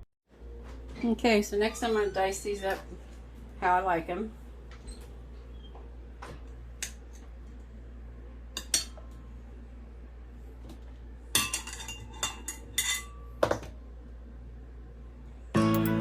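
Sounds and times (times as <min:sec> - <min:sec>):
knife and dishes clinking: 0:15.6 - 0:16.0.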